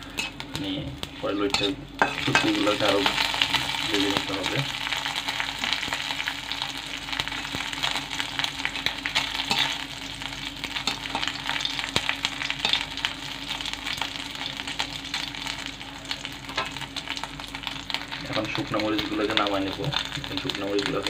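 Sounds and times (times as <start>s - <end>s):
spatula scraping a pan: 0.0s - 0.4s
food sizzling in hot oil: 0.0s - 21.0s.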